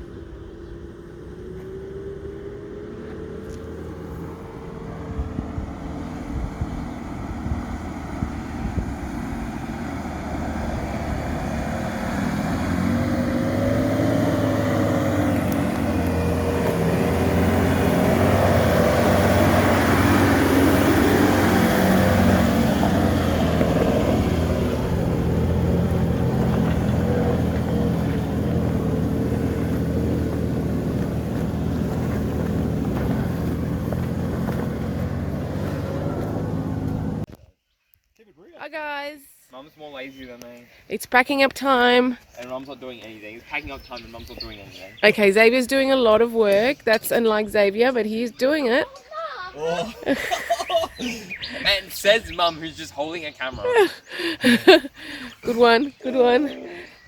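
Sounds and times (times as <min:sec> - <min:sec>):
vehicle engine approaching: 0:00.0 - 0:37.4, 0:49.5 - 0:57.0.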